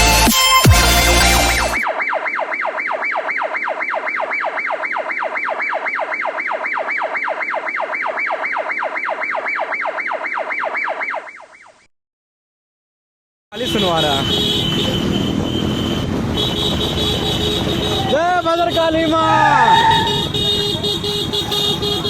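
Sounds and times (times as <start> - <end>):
electronic siren yelping: 0.2 - 11.9, 18.8 - 22.0.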